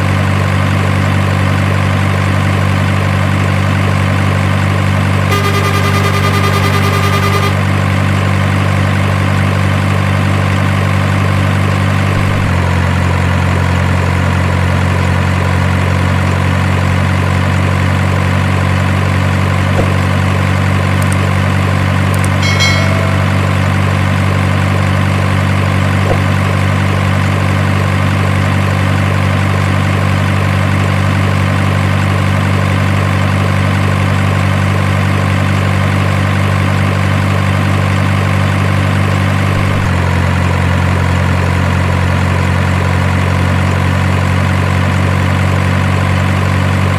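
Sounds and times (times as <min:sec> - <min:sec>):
engine idling drone: 0:00.0 - 0:42.2
brief chirp of tones: 0:05.3 - 0:07.6, 0:22.2 - 0:24.2
short high tone: 0:05.3 - 0:07.7, 0:22.2 - 0:24.6.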